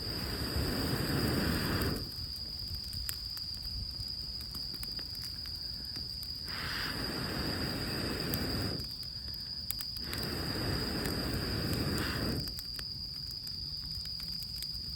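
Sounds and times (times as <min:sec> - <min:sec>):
rush of air noise: 0:00.0 - 0:02.4, 0:06.3 - 0:12.6
campfire crackling and popping: 0:00.0 - 0:14.9
steady high whine: 0:06.4 - 0:08.9, 0:10.0 - 0:12.5.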